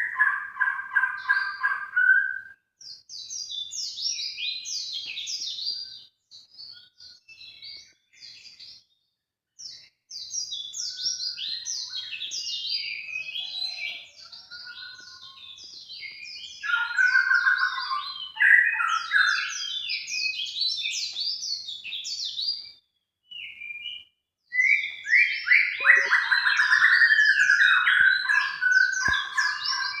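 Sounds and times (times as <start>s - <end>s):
high falling bird chirps: 9.6s - 30.0s
low bird warbling: 25.5s - 30.0s.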